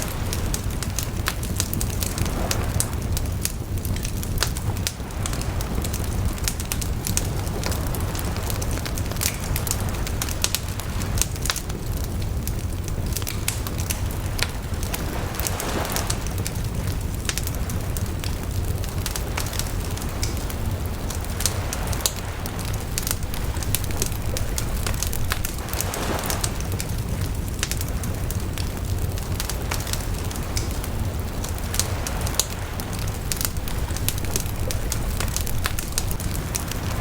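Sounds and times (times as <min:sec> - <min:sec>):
wood fire crackling: 0:00.0 - 0:37.0.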